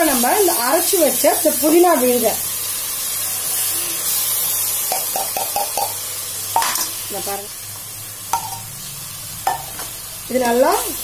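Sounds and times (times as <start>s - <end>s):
paste sizzling in hot oil: 0.0s - 11.0s
spoon tapping metal pot: 4.9s - 6.0s, 6.6s - 6.9s, 8.3s - 8.7s.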